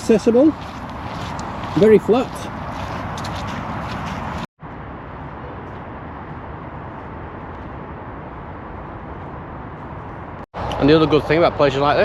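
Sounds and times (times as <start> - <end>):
motorway traffic drone: 0.0 - 12.0.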